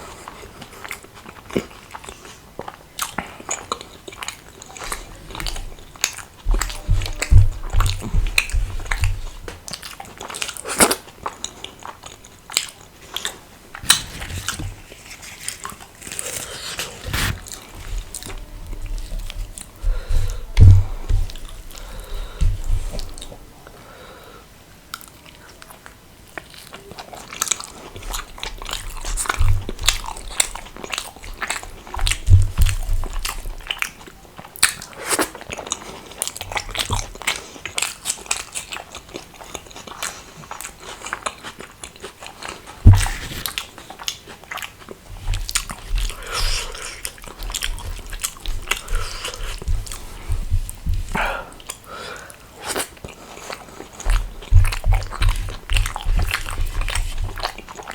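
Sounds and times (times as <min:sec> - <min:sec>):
person chewing crunchy food: 0:00.0 - 0:23.5, 0:24.9 - 0:57.9
loud thump: 0:20.2 - 0:21.5.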